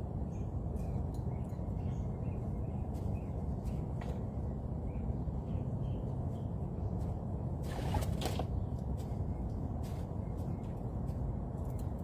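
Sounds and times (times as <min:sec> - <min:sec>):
small birds chirping: 0:00.2 - 0:07.2, 0:08.5 - 0:12.0.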